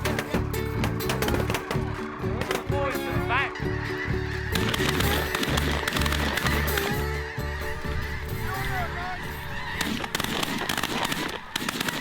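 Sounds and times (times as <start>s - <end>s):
geese honking: 0.0s - 12.0s
sharp bangs: 9.8s - 12.0s.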